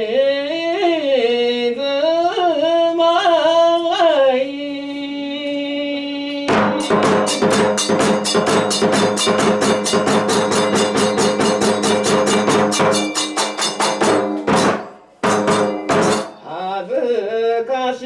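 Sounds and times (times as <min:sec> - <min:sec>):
clashing hand cymbals: 0:06.5 - 0:16.7
drum beat: 0:06.5 - 0:16.7.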